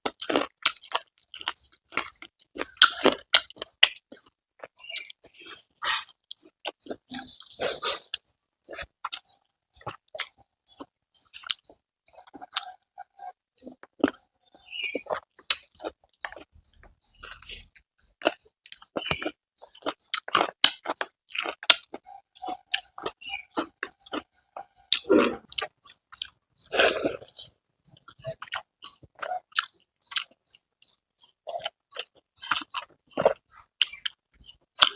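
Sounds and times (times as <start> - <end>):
wet chewing and lip smacks: 0.0 - 34.9
slurps: 5.3 - 8.9, 26.6 - 27.5.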